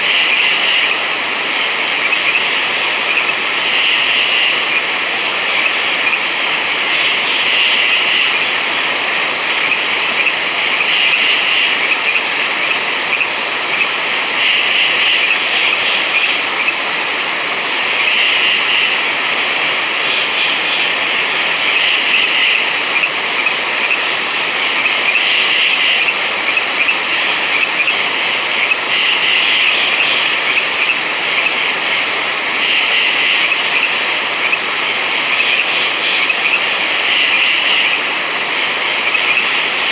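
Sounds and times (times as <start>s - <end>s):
louder frog call: 0.0s - 1.0s, 2.0s - 4.9s, 6.9s - 8.6s, 9.6s - 13.8s, 14.4s - 16.7s, 18.0s - 19.0s, 21.6s - 28.0s, 28.6s - 31.6s, 32.6s - 34.6s, 35.3s - 38.0s
chorus of frogs: 0.0s - 39.9s.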